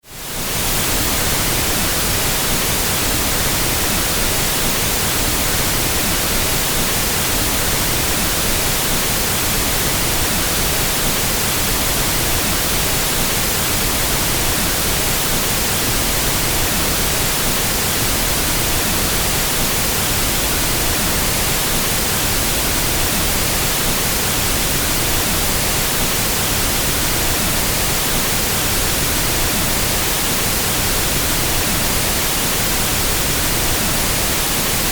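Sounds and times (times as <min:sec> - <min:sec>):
pink noise hiss: 0:00.1 - 0:34.9.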